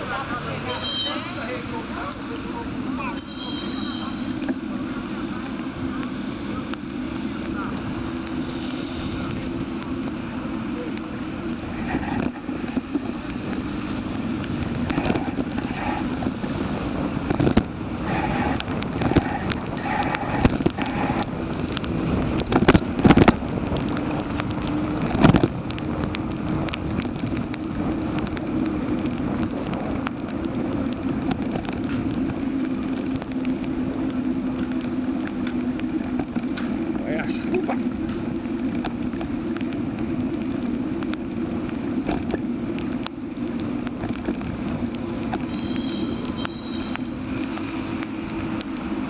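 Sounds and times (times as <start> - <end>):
wind on microphone: 4.4 - 37.0.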